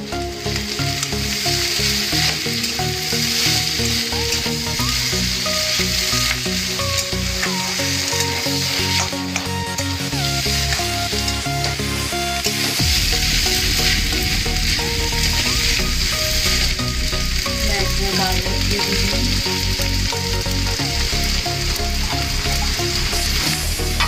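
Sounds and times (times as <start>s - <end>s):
background music: 0.0s - 24.0s
food sizzling in a pan: 0.0s - 24.0s
metal spatula scraping: 0.2s - 17.2s.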